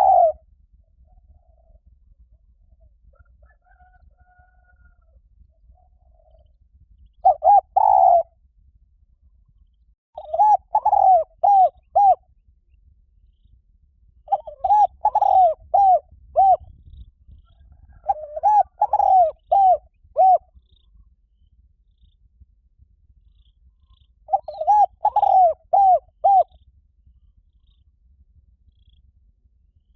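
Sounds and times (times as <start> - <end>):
dove cooing: 0.0 - 0.4, 7.2 - 8.3, 10.2 - 12.2, 14.3 - 16.7, 17.6 - 20.5, 24.3 - 26.6.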